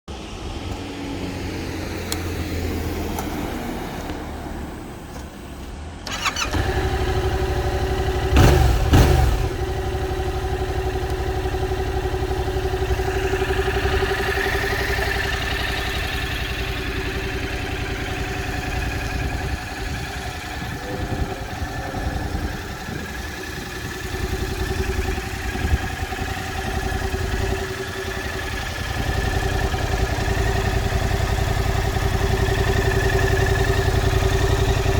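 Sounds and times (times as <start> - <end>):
motorcycle engine starting and revving: 0.1 - 34.9
motorcycle engine idling: 0.3 - 34.9.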